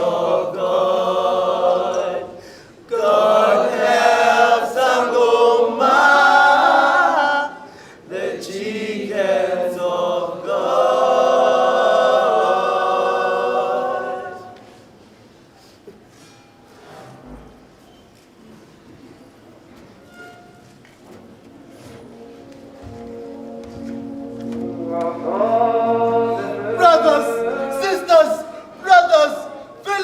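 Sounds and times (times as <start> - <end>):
choir singing unaccompanied: 0.0 - 14.8, 21.9 - 30.0.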